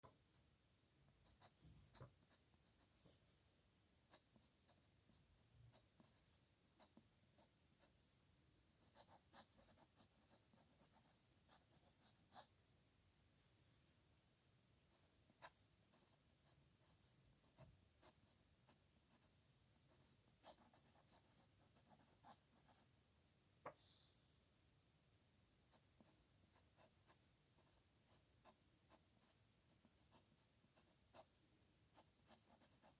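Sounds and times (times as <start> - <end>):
pen scratching on paper: 1.2 - 3.5, 4.1 - 8.2, 8.8 - 12.6, 14.9 - 23.0, 25.7 - 32.9.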